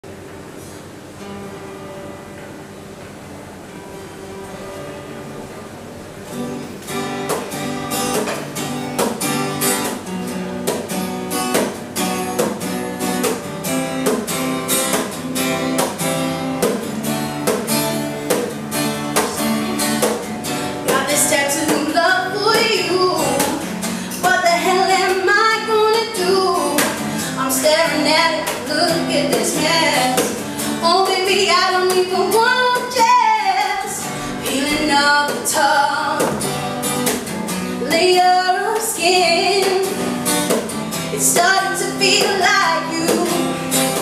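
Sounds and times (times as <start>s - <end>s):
acoustic guitar strumming: 0.0s - 44.0s
woman singing: 20.8s - 36.5s, 37.8s - 40.2s, 41.0s - 44.0s.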